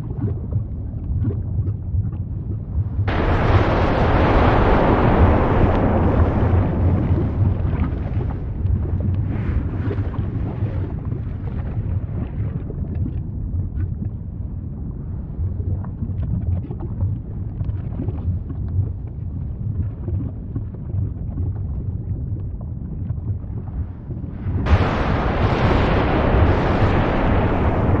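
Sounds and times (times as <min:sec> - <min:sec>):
volcano rumbling: 0:00.0 - 0:12.8, 0:22.0 - 0:28.0
faint crackles: 0:03.1 - 0:13.2, 0:24.4 - 0:28.0.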